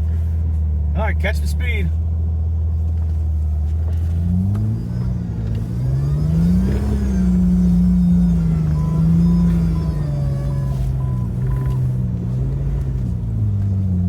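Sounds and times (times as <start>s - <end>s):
engine revving: 3.7s - 14.0s.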